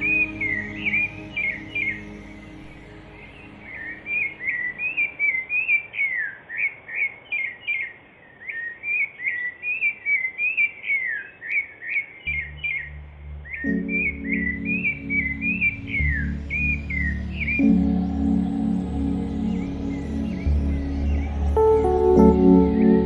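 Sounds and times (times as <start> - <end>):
soft meditation music: 0.0 - 5.7, 12.3 - 23.0
songbirds chirping: 0.0 - 23.0.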